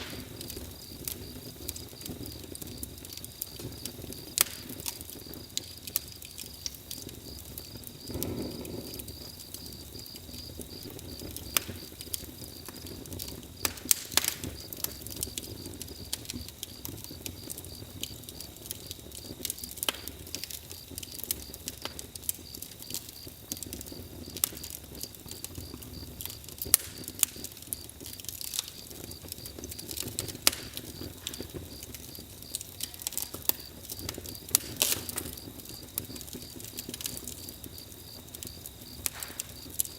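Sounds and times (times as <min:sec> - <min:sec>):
fire whoosh: 0:00.0 - 0:22.3
campfire crackling: 0:00.0 - 0:39.9.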